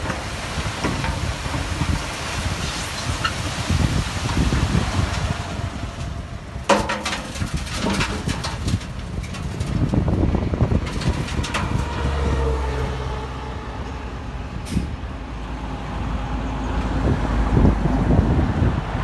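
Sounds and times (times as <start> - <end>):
sharp knocks and clattering: 6.7 - 10.1.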